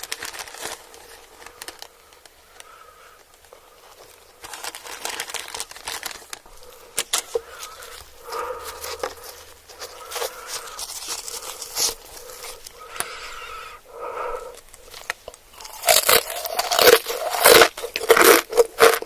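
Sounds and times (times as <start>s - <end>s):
crunchy food chewing: 14.4s - 19.0s.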